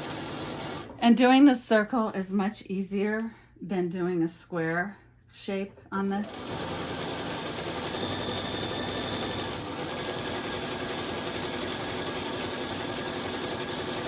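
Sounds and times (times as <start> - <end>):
sewing machine stitching: 0.0 - 1.0, 6.2 - 14.0.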